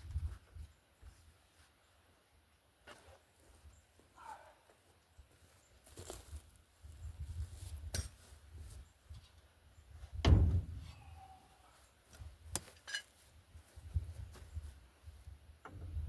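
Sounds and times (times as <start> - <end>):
metallic ring: 12.8 - 13.1.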